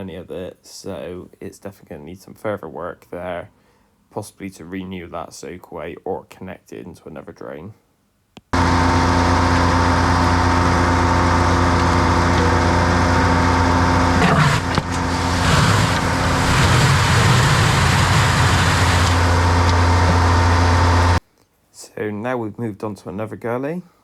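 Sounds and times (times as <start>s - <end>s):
tanker truck engine humming: 8.6s - 21.2s.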